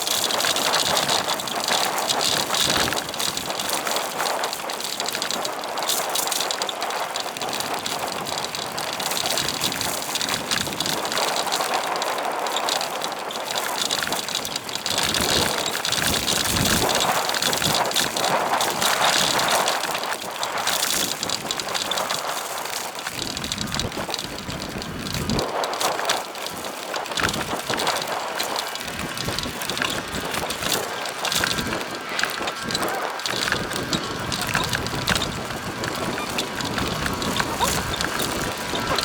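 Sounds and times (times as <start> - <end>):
bicycle tyre noise: 0.0 - 39.0
wind rushing over microphone: 23.1 - 39.0.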